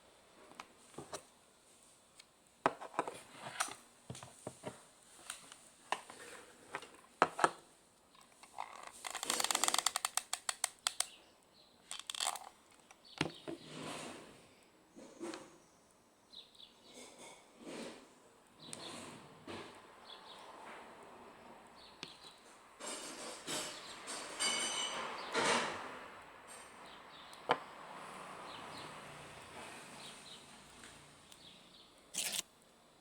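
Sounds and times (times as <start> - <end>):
clicks and knocks of handled objects: 8.2 - 11.2, 11.9 - 13.4.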